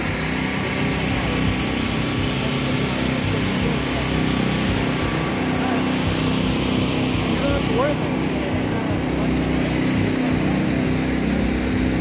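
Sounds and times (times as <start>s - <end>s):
engine droning steadily: 0.0s - 12.0s.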